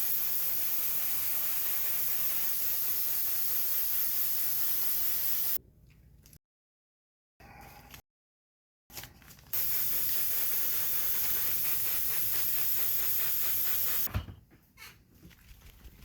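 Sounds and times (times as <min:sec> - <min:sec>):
airbrush spraying paint hiss: 0:00.0 - 0:05.6, 0:09.6 - 0:14.1.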